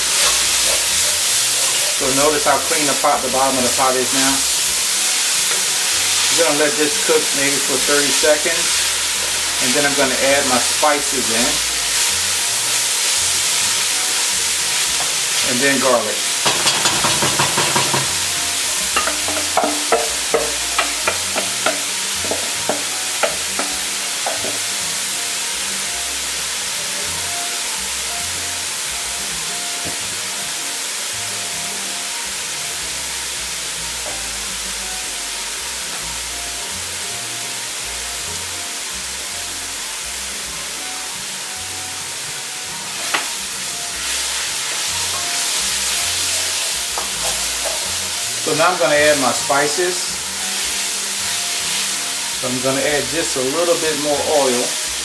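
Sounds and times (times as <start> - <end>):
utensil scraping a pot: 0.0 - 24.8
onions sizzling in oil: 0.0 - 55.0
utensil knocking against pot: 16.4 - 18.3, 19.0 - 24.6.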